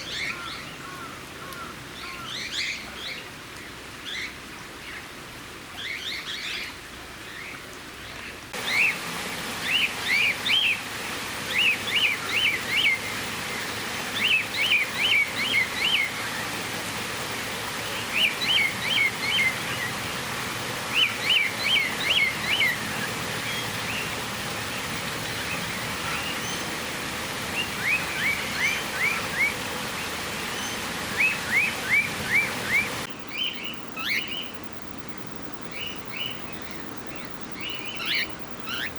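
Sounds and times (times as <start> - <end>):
steady hiss: 0.1 - 38.9
cockatiels chirping: 35.7 - 38.9.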